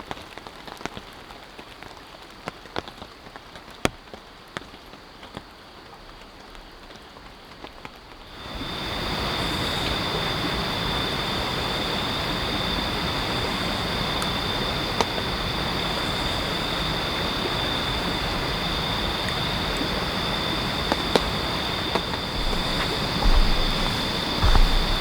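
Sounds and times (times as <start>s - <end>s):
stream water rushing: 8.4s - 25.0s.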